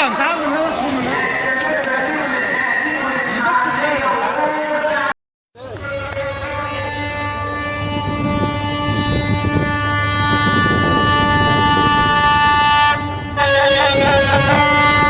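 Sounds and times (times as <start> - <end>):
locomotive horn blast: 5.6 - 15.0
low rumble of train: 5.6 - 15.0.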